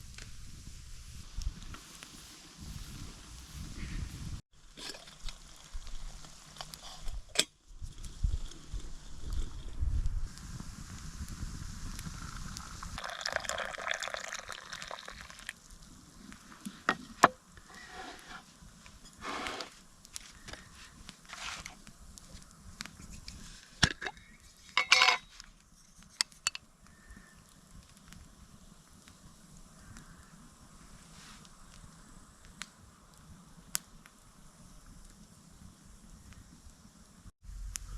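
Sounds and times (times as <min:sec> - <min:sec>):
liquid pouring: 0:12.8 - 0:15.6
camp gear knocking and clinking: 0:24.8 - 0:25.3.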